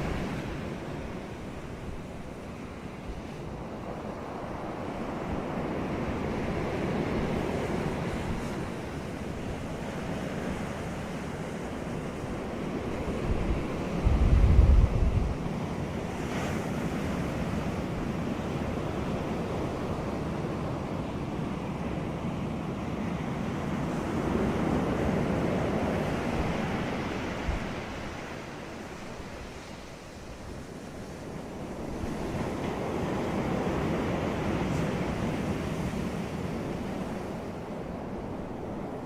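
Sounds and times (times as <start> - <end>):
wind buffeting microphone: 0.0 - 21.9
ocean waves on a beach: 0.0 - 39.0.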